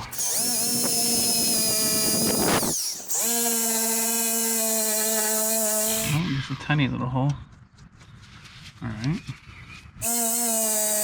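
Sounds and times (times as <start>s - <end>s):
drill wire wheel grinding metal: 0.0s - 6.2s, 10.0s - 11.0s.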